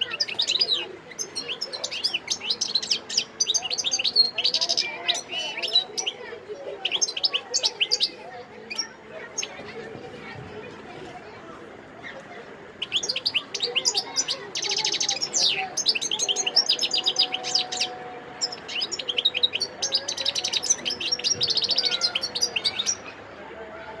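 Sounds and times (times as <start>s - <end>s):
goldfinch singing: 0.0s - 9.6s, 12.8s - 23.2s.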